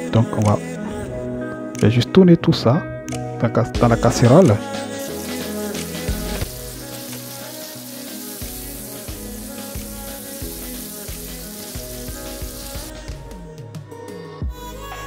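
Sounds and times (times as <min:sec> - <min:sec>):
background music with beat: 0:03.0 - 0:15.0
vegetables sizzling in oil: 0:05.0 - 0:12.9.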